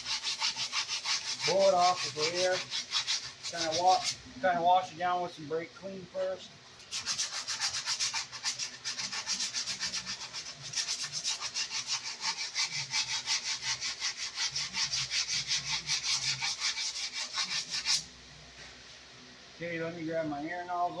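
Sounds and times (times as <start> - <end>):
sandpaper rubbing brake shoes: 0.0 - 4.2, 6.8 - 18.1.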